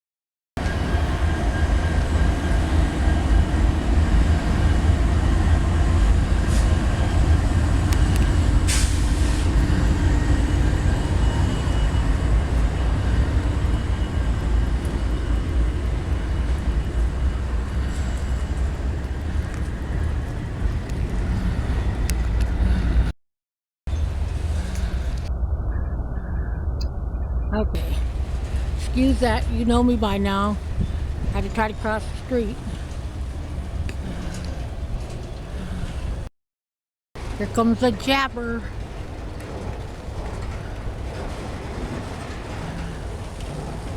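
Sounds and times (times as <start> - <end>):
train wheels rumbling on track: 0.6 - 23.1, 23.9 - 25.3, 27.8 - 36.3, 37.2 - 43.9
brief hiss: 8.7 - 9.5.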